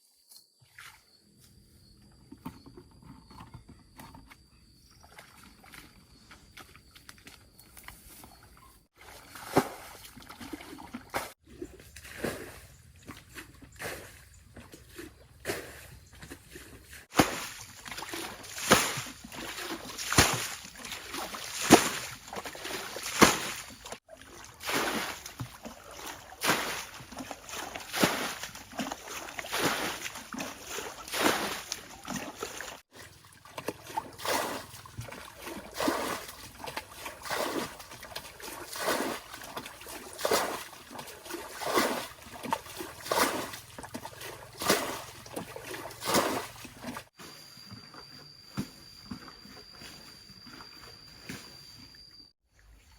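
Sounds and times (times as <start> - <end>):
water splashing in strokes: 9.0 - 11.4, 16.5 - 47.2.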